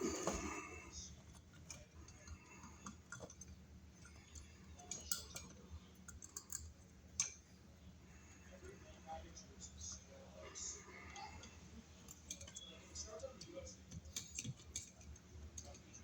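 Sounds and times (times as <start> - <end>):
small screws and tools clicking: 1.3 - 7.4.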